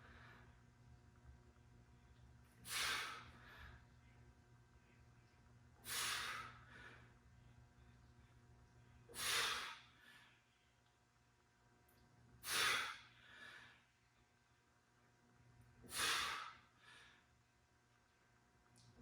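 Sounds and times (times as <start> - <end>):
person breathing hard: 2.6 - 3.9, 5.8 - 7.2, 9.1 - 10.5, 12.4 - 14.0, 15.8 - 17.3.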